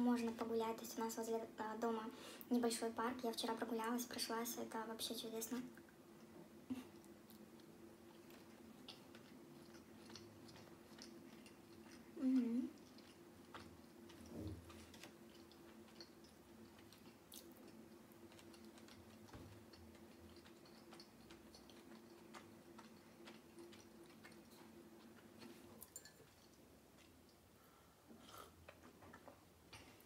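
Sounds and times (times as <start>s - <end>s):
low steady hum: 0.0s - 30.0s
chewing sandwich: 5.7s - 27.5s.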